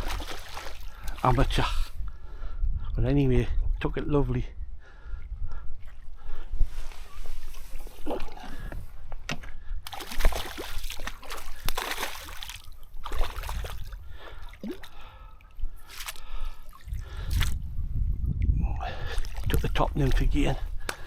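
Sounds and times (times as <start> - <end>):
fish splashing in water: 0.0 - 1.2, 9.9 - 15.0.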